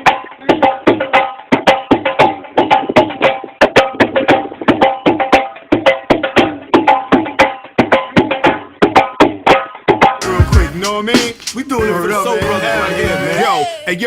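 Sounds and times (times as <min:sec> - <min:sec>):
sharp percussive knocks: 0:00.0 - 0:10.2.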